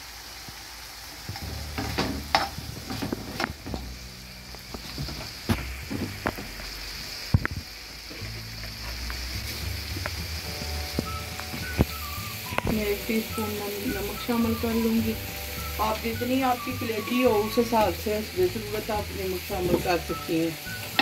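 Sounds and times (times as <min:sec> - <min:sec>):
liver sizzling in a pan: 0:00.0 - 0:21.0
spatula scraping and knocking pan: 0:01.3 - 0:03.9.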